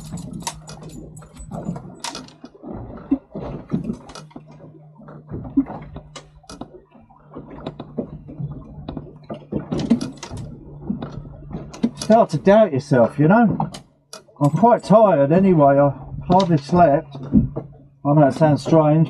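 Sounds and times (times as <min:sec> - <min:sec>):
steady low hum: 0:14.4 - 0:19.0.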